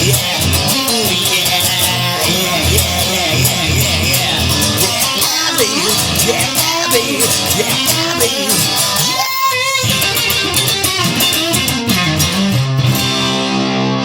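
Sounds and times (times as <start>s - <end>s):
person singing: 0.0s - 10.6s
electric guitar lead: 0.0s - 14.0s.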